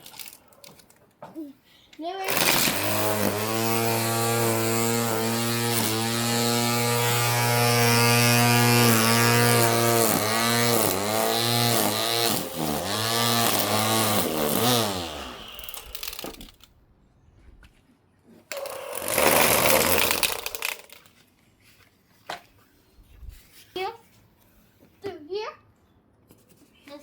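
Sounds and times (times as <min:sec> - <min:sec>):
string trimmer whining: 0:02.2 - 0:16.7, 0:18.5 - 0:21.1.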